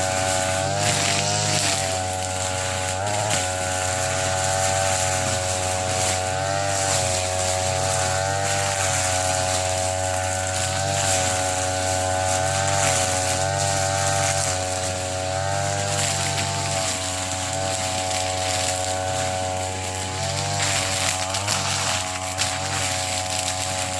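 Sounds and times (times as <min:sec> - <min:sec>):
brush cutter engine cutting grass: 0:00.0 - 0:23.9.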